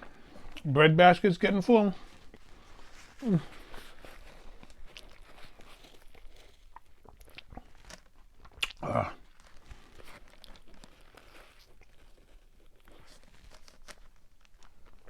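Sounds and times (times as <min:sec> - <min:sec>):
chewing and crunching food: 0:00.0 - 0:00.7, 0:01.9 - 0:15.0
wet mouth clicks: 0:08.5 - 0:08.8.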